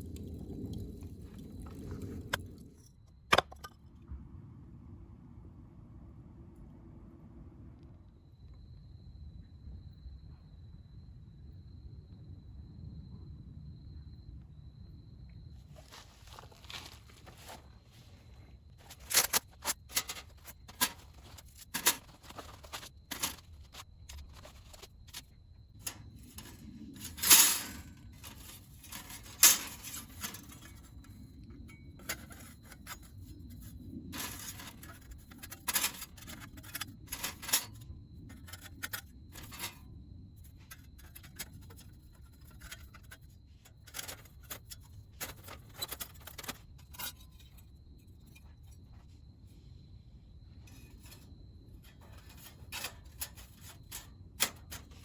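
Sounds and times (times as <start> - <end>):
metal panels clinking and scraping: 18.8 - 48.8, 50.7 - 55.0.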